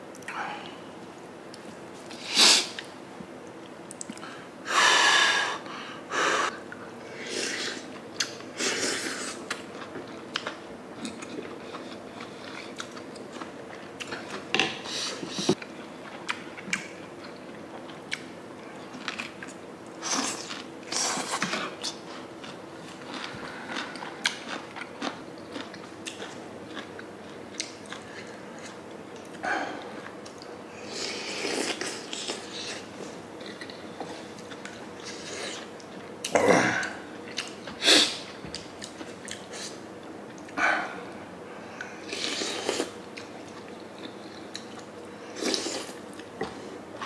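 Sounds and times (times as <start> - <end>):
wet chewing and eating: 9.4 - 14.6, 18.9 - 30.5, 37.3 - 37.8.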